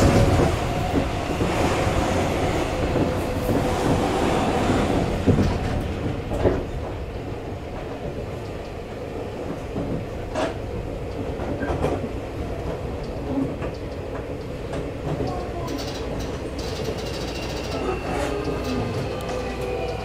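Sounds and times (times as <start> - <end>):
rail-joint clacks: 0.0 - 20.0
wheels rumbling on rail: 0.0 - 20.0.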